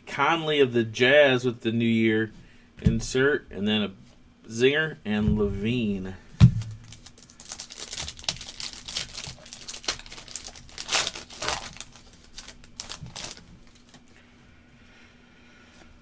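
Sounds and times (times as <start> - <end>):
wrapper tearing and crinkling: 6.6 - 14.1.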